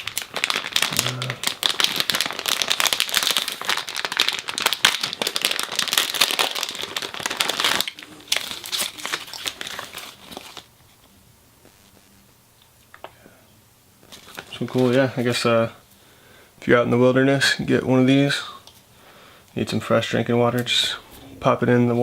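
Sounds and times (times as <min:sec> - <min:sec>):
plastic packaging crinkling: 0:00.0 - 0:11.1, 0:14.0 - 0:15.5.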